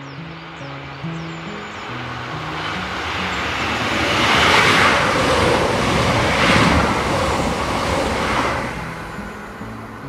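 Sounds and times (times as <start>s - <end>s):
diesel train passing: 0.4s - 10.0s.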